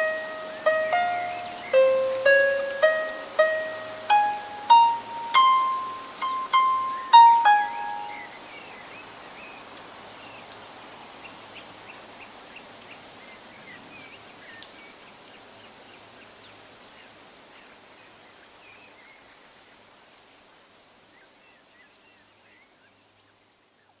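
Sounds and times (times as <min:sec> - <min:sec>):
small birds chirping: 0:00.0 - 0:10.6.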